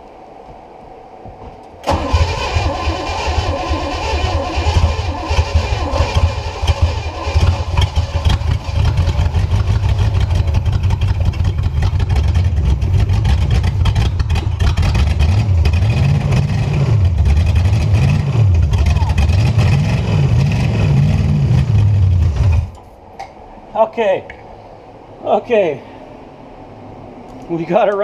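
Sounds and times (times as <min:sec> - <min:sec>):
boat engine running and revving: 0:04.6 - 0:22.7.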